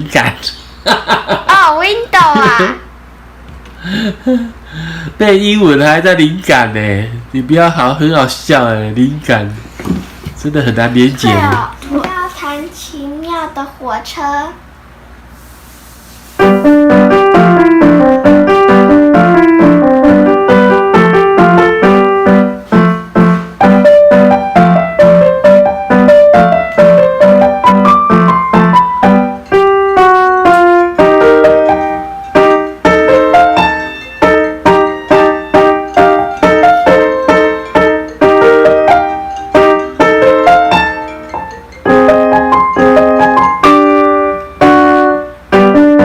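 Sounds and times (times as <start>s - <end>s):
piano piece: 16.2s - 46.0s.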